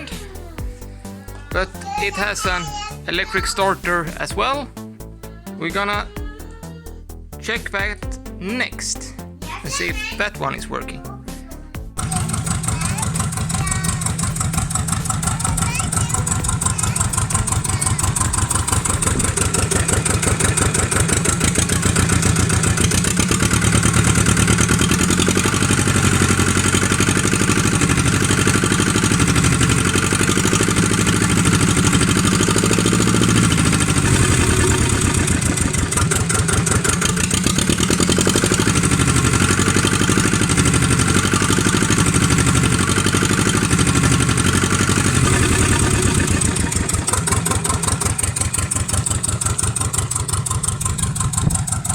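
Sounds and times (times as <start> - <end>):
marine diesel engine running: 12.0 - 51.9.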